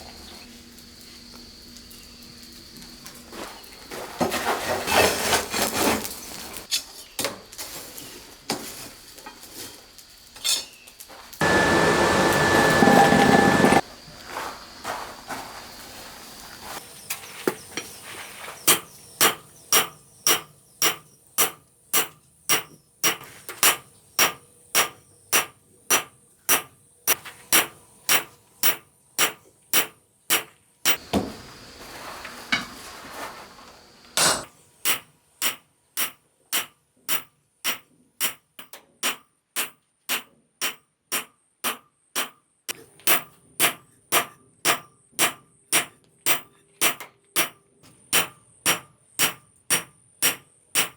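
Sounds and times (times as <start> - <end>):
hammer striking steel on anvil: 18.7 - 31.0, 34.2 - 42.4, 43.0 - 50.9.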